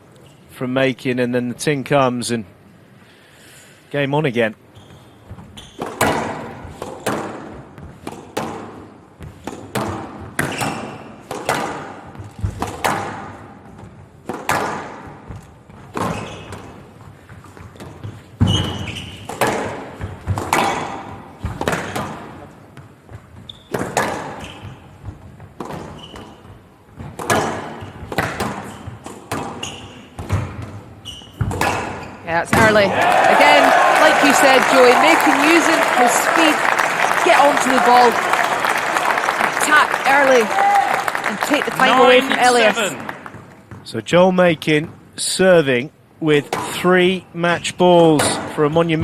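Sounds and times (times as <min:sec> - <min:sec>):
shoe squeaks: 0:00.2 - 0:00.5, 0:04.7 - 0:06.0, 0:10.4 - 0:11.2, 0:16.0 - 0:16.8, 0:18.4 - 0:19.4, 0:23.4 - 0:25.0, 0:25.8 - 0:26.6, 0:28.6 - 0:30.3, 0:31.0 - 0:32.3
squash ball hitting rackets and walls: 0:05.2 - 0:33.0, 0:46.5 - 0:46.9.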